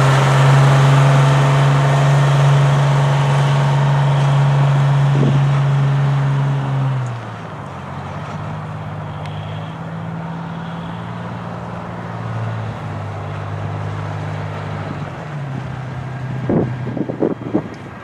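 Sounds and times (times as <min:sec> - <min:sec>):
truck engine idling: 0:00.0 - 0:16.0
wind on microphone: 0:16.3 - 0:18.0.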